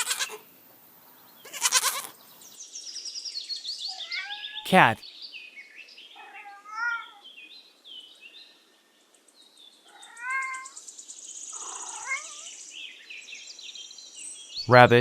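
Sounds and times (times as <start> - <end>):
cat meowing: 3.9 - 4.6, 6.2 - 7.2, 9.9 - 10.8, 11.9 - 12.5.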